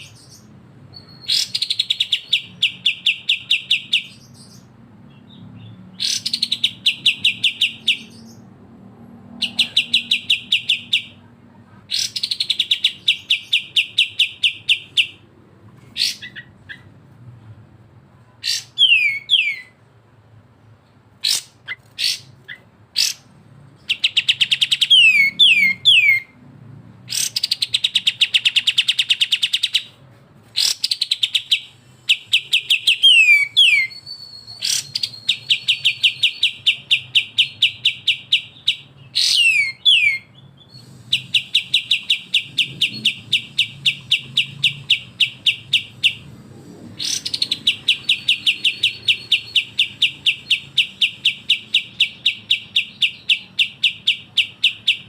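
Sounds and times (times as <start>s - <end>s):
songbirds rattling trills: 27.1s - 55.0s.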